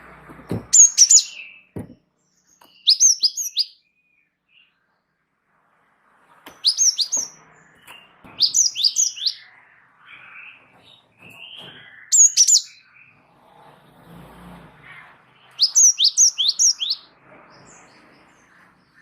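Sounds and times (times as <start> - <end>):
low thump: 0.2 - 0.8, 1.8 - 2.0
bird singing high whistled notes: 0.7 - 1.7, 2.4 - 4.8, 6.6 - 10.7, 11.4 - 13.1, 15.5 - 17.7.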